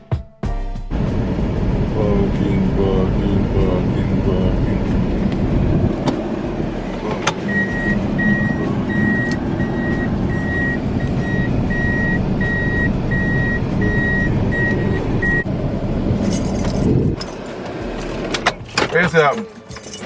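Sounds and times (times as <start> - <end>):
vehicle rumble: 0.9 - 20.0
vehicle warning beeper: 7.4 - 15.5.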